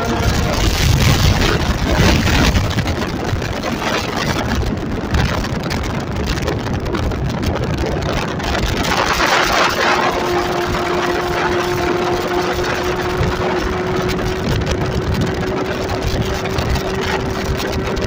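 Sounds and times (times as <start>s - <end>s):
motorcycle engine running: 0.0s - 18.0s
wind noise on microphone: 0.0s - 18.0s.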